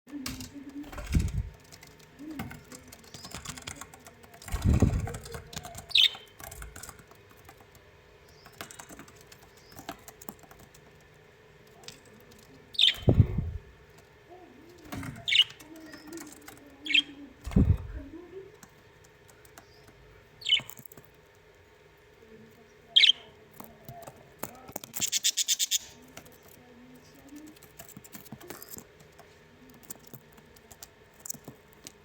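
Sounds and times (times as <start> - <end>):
low fluttering thumps: 0.8 - 1.6, 4.5 - 5.5, 12.8 - 13.7, 17.5 - 18.2
bird chirping: 4.5 - 6.4, 12.7 - 13.7, 19.6 - 20.9, 22.9 - 23.4, 25.0 - 26.0.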